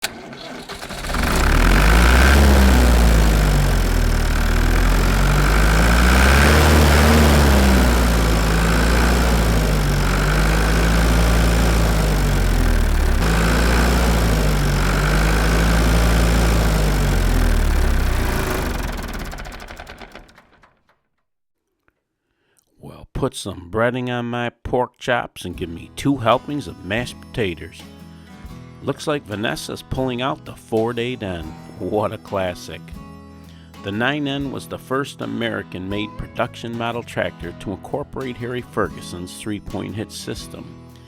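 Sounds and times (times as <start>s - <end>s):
engine running with wavering pitch: 0.0s - 20.7s.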